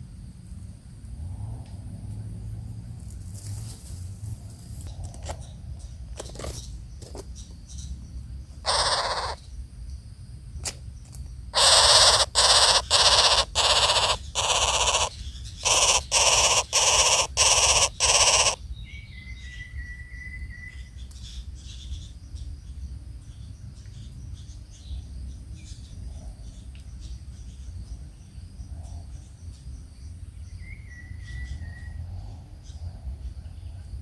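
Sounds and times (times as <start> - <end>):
bird harsh rasping calls: 8.6 - 9.5, 11.5 - 18.7.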